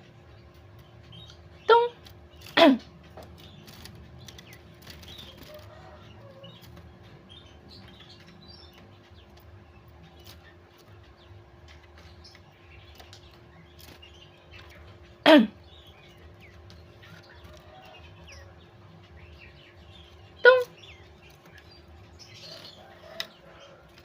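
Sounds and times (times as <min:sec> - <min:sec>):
bird chick chirping: 0:00.0 - 0:24.0
small clicks and rustles: 0:02.0 - 0:15.0.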